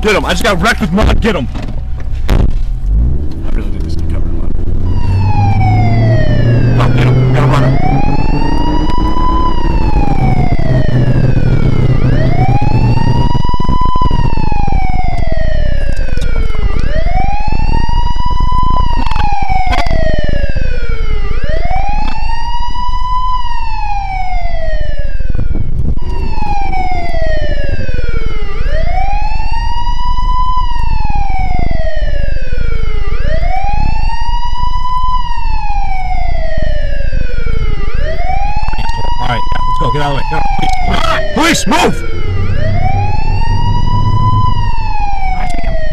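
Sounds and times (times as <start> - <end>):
car driving rumble: 0.0 - 23.8, 37.0 - 45.9
wail siren: 4.6 - 45.9.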